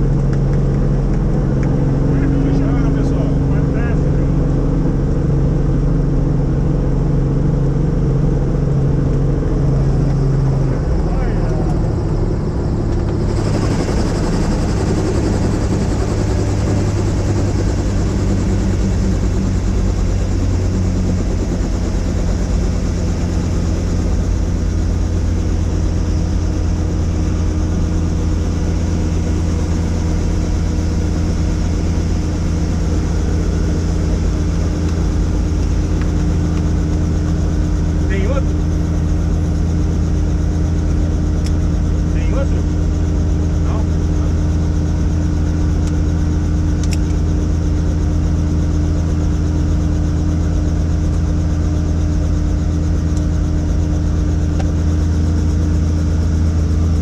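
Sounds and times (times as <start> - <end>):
helicopter drone: 0.0 - 57.0.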